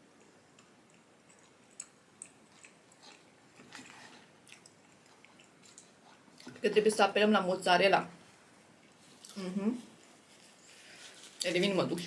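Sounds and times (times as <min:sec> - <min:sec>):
faint chewing: 0:00.0 - 0:07.0, 0:08.8 - 0:11.7
soft mouth clicks and smacks: 0:00.2 - 0:06.6.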